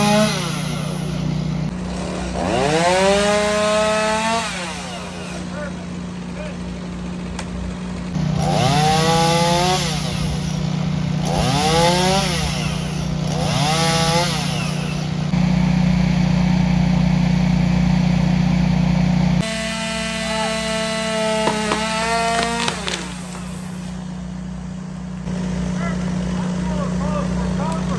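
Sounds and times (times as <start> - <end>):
chainsaw running: 0.0 - 27.9.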